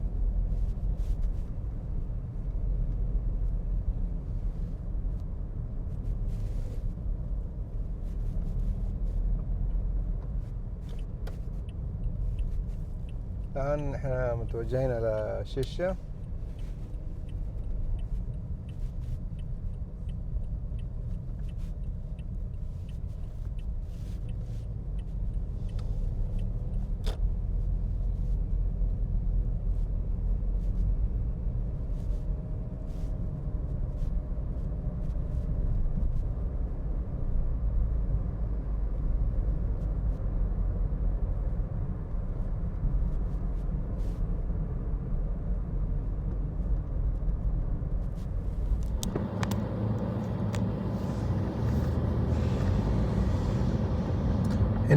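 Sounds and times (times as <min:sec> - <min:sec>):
car engine and road noise: 0:00.0 - 0:54.9
faint ticks: 0:08.0 - 0:28.5.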